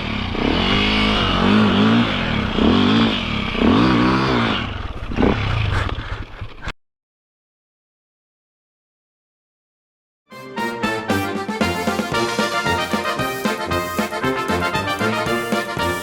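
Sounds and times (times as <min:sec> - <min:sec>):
dirt bike engine revving: 0:00.0 - 0:06.2, 0:11.7 - 0:16.0.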